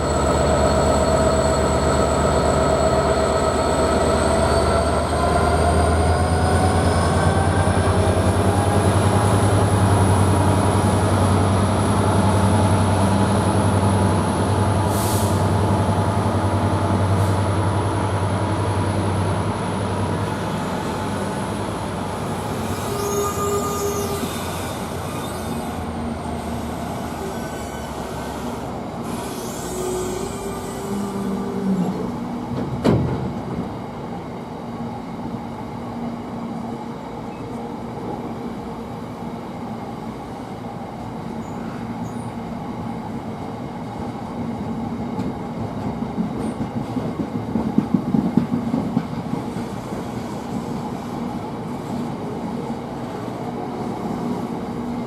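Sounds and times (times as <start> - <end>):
train wheels squealing: 0.0 - 11.8, 20.4 - 32.2, 41.4 - 42.5, 49.4 - 52.2.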